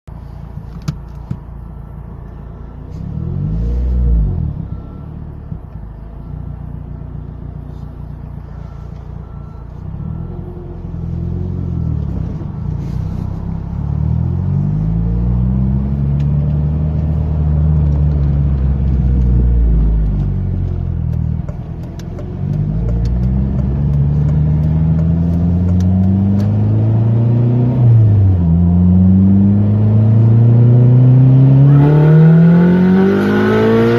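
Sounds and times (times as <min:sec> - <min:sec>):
turbocharged car engine accelerating: 0:08.4 - 0:33.9.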